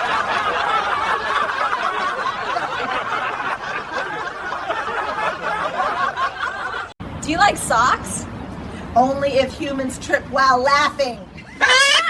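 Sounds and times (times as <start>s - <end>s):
people laughing: 0.0s - 7.0s.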